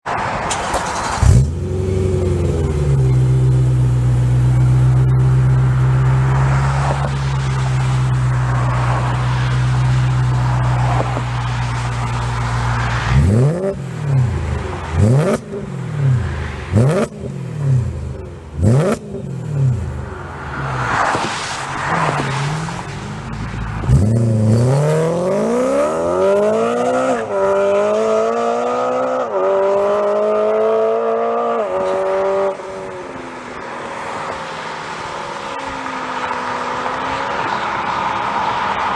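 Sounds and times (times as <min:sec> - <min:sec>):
car engine revving: 0:00.4 - 0:33.1
sports car engine running: 0:01.2 - 0:20.4.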